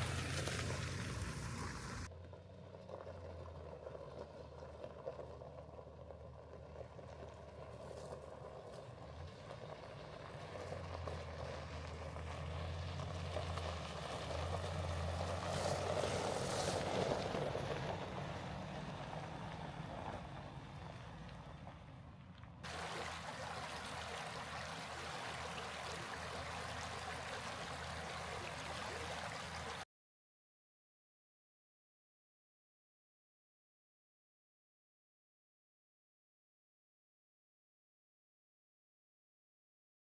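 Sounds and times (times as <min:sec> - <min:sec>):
road noise: 0:00.0 - 0:29.8
vehicle engine hum: 0:00.0 - 0:29.8.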